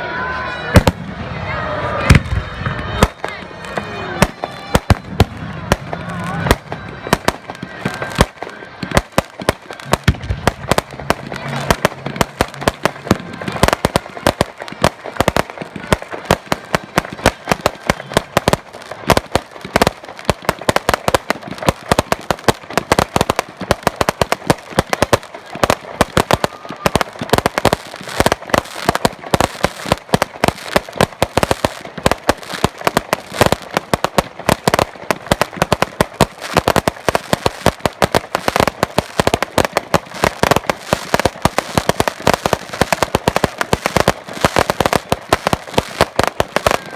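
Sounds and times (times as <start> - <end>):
fireworks bangs and cracks: 0.2 - 46.9.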